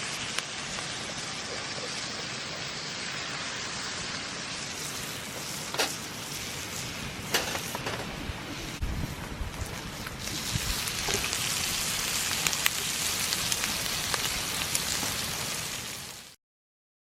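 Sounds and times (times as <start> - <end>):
bacon sizzling in a frying pan: 0.0 - 16.4.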